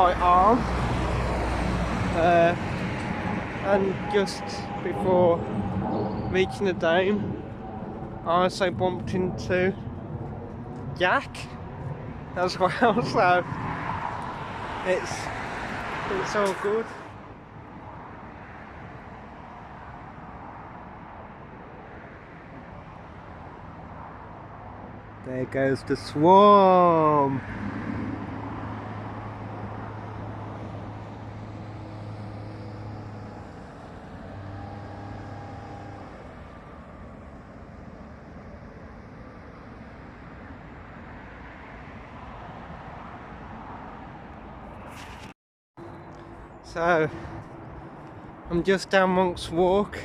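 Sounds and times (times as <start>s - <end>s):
low outdoor rumble: 0.0s - 13.7s.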